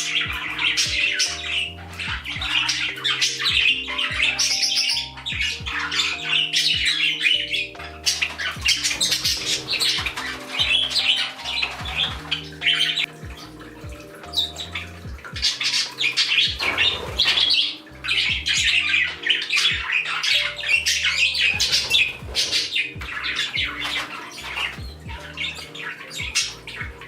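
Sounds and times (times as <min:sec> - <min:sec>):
background music with bass line: 0:00.0 - 0:27.0
parrots chattering and squawking: 0:00.0 - 0:27.0.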